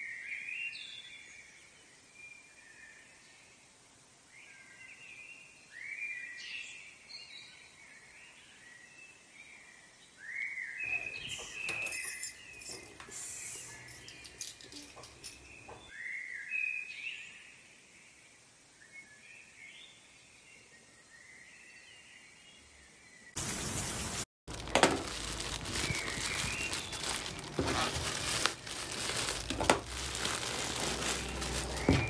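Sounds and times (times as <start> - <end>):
birds chirping: 10.9 - 15.9, 24.6 - 32.0
loud crackling noise: 23.4 - 32.0.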